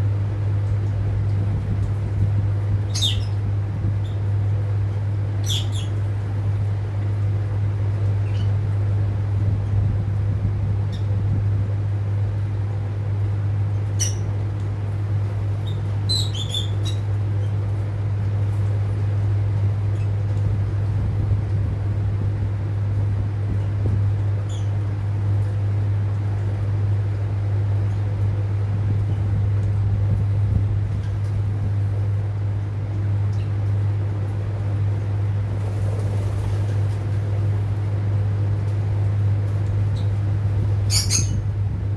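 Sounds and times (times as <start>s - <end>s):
loud steady low hum: 0.0s - 41.9s
lovebird chirps: 40.9s - 41.4s.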